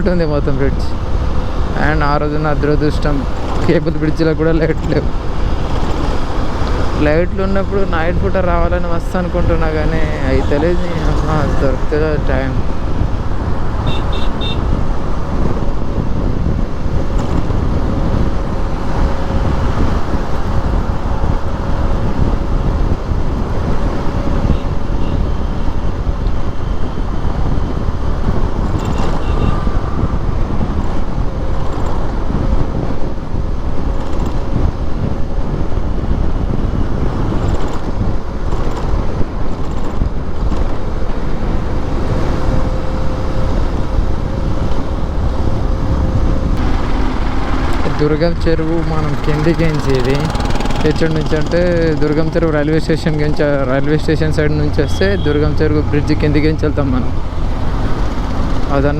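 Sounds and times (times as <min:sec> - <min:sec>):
road and traffic noise: 0:00.0 - 0:58.9
wind rushing over microphone: 0:00.0 - 0:58.9.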